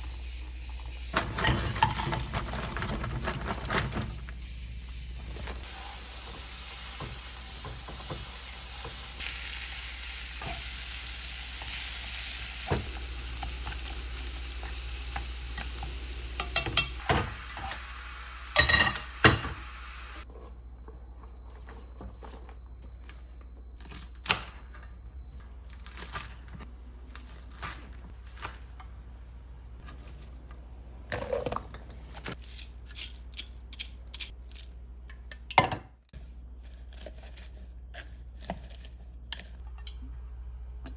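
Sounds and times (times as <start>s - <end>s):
kitchen utensils and dishes clicking: 1.2s - 4.2s, 15.1s - 17.7s, 18.6s - 19.6s
food sizzling in a pan: 4.4s - 20.3s.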